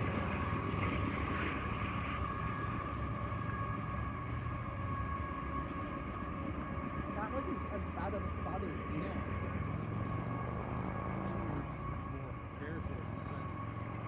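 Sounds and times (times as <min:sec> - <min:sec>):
train wheels rumbling on rails: 0:00.0 - 0:09.3.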